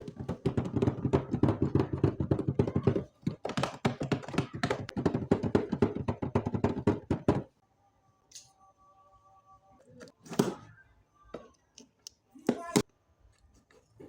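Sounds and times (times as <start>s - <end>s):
faint steady tones: 7.5s - 12.4s.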